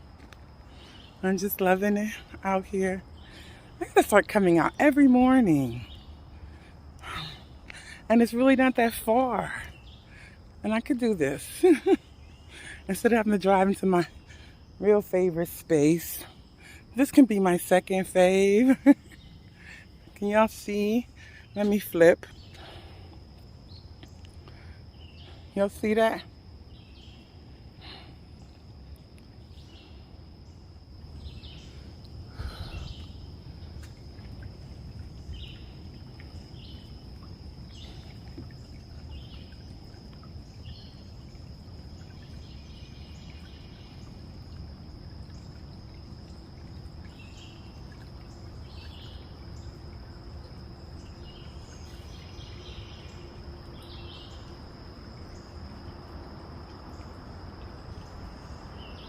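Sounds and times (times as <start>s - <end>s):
high insect drone: 0.0s - 59.0s
low rumble of wind: 0.0s - 59.0s
birds chirping: 0.6s - 28.7s, 29.4s - 44.2s.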